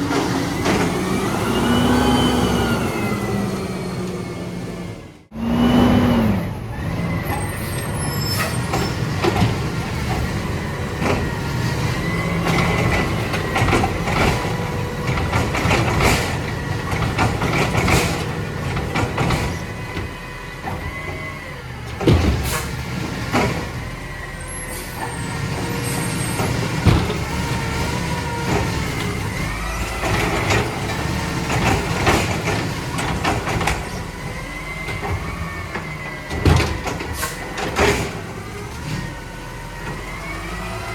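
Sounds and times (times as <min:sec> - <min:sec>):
knocks and clanks: 0:08.4 - 0:24.1, 0:25.0 - 0:39.1.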